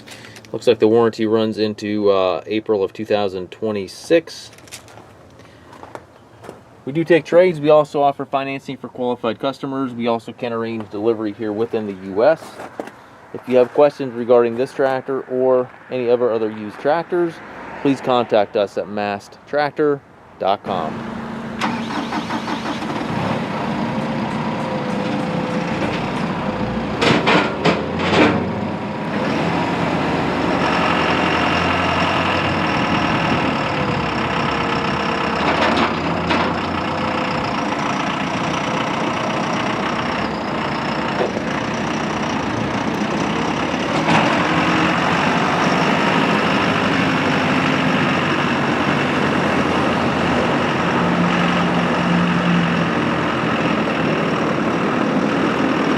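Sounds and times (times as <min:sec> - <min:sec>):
diesel engine running: 0:20.7 - 0:55.9
sharp knocks: 0:27.0 - 0:28.5.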